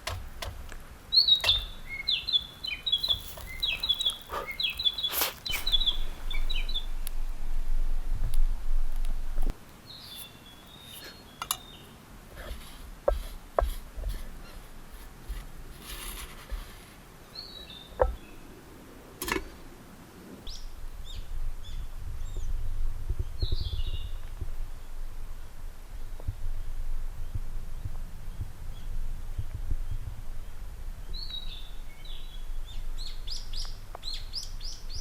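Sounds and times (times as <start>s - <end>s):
songbirds chirping: 0.0s - 7.6s, 8.2s - 35.0s
low rumble: 5.6s - 9.6s.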